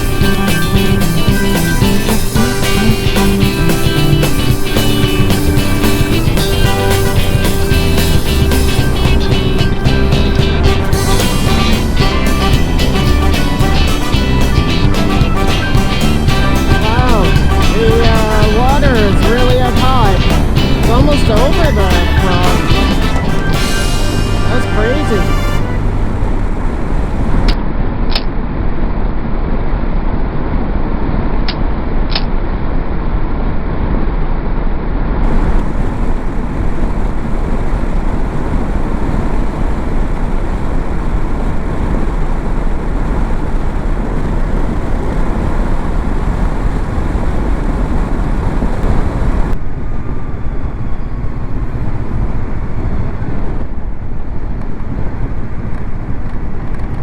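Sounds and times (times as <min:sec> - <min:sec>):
motorcycle engine running: 0:00.0 - 0:27.6, 0:35.2 - 0:49.6
wind rush: 0:00.0 - 0:27.9, 0:35.2 - 0:57.0
road noise: 0:00.0 - 0:28.8, 0:35.2 - 0:57.0.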